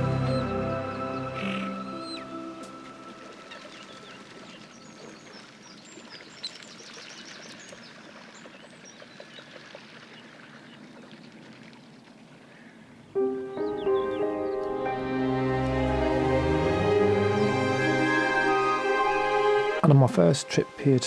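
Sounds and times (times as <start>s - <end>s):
small birds chirping: 0.0s - 10.9s
background hiss: 13.2s - 21.0s.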